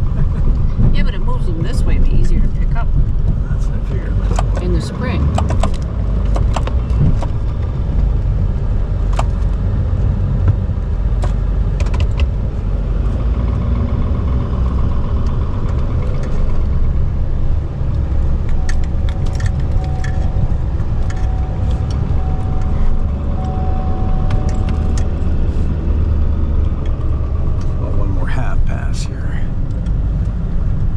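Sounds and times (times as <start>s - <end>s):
diesel pickup engine rumbling: 0.0s - 30.9s
sharp clicks and knocks: 4.1s - 7.8s, 9.0s - 12.4s, 17.9s - 25.4s.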